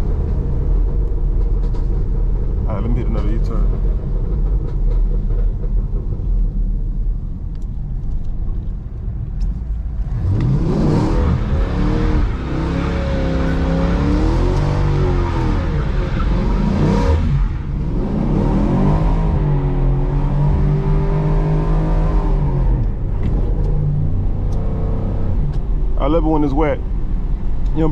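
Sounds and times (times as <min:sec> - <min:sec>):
car engine revving: 0:09.9 - 0:26.5.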